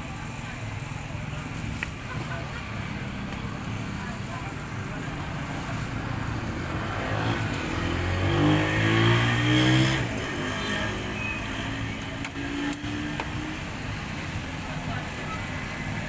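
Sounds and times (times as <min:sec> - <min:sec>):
steady background noise: 0:00.0 - 0:16.0
vehicle driving past: 0:06.6 - 0:11.9.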